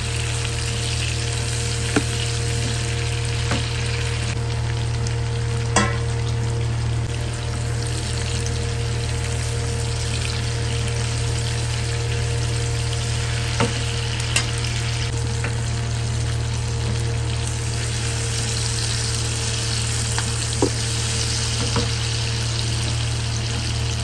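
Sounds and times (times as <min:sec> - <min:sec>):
steady low hum: 0:00.0 - 0:24.0
vegetables sizzling in oil: 0:00.0 - 0:24.0.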